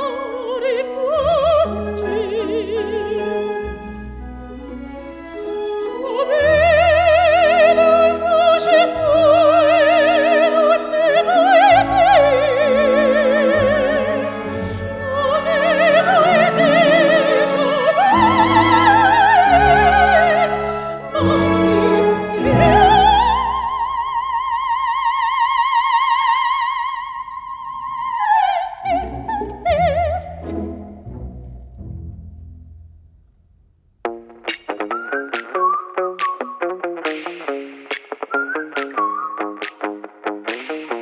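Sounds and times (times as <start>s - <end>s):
operatic high voice singing: 0.0s - 3.6s, 5.6s - 30.5s
classical accompaniment: 0.0s - 24.2s, 28.9s - 33.2s.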